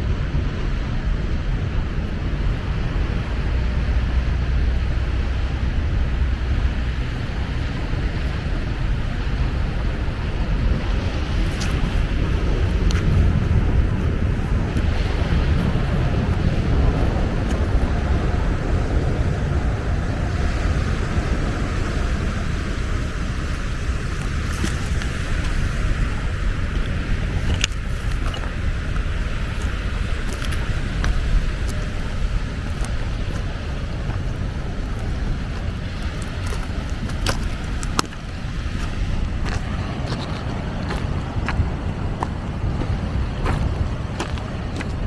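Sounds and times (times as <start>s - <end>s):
outdoor noise rush: 0.0s - 45.0s
wind buffeting microphone: 0.0s - 45.0s.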